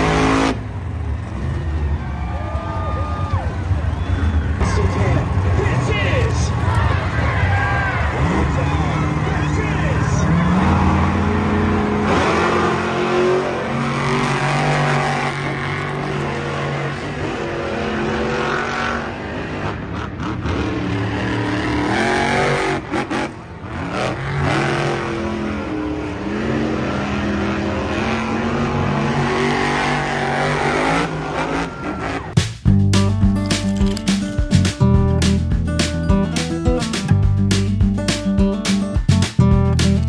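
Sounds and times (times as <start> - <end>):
car engine revving hard: 0.0 - 0.8, 8.0 - 32.4.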